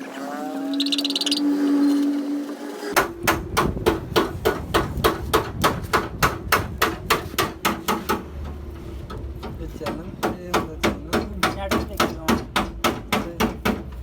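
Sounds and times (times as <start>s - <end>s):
hammer blows: 3.0s - 14.0s.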